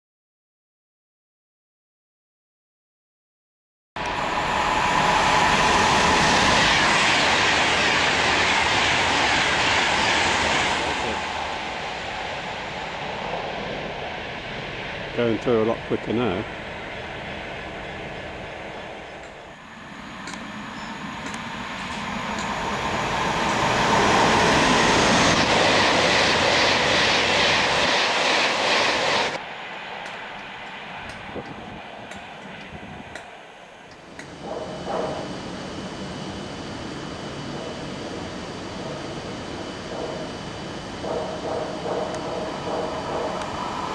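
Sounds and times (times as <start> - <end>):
electric train passing at speed: 4.0 - 43.9
train whine: 4.0 - 43.9.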